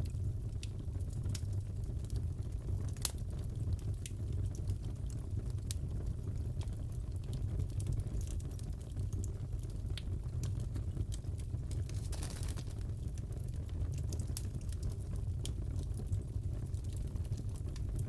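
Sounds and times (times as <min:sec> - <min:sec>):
wood fire crackling: 0:00.0 - 0:18.0
fire pops and snaps: 0:02.9 - 0:03.3, 0:06.6 - 0:15.9.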